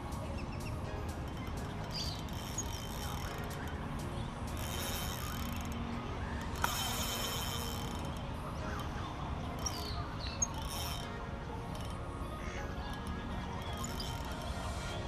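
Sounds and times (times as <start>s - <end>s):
birds chirping and calling: 0.2s - 5.7s, 6.3s - 14.6s
whistled bird glides: 0.3s - 3.9s.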